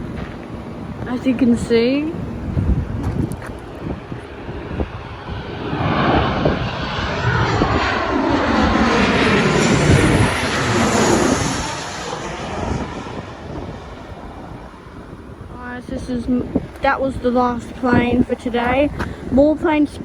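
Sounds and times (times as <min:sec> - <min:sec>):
jet airliner passing: 0:00.0 - 0:20.0.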